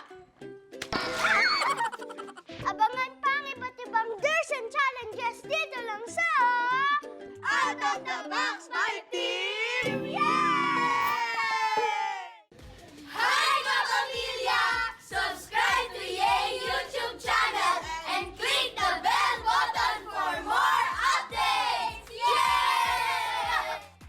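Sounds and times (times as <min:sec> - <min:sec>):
children shouting and squealing: 0:09.9 - 0:12.4.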